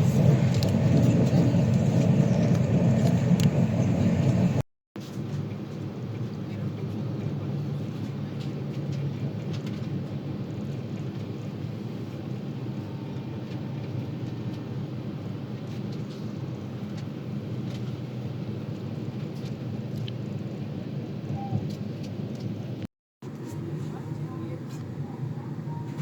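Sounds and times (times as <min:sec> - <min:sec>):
train rumbling: 0:00.0 - 0:04.6.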